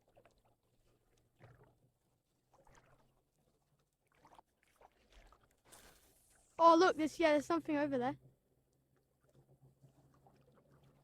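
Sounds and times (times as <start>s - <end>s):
water splashes from wading: 0.0s - 6.2s.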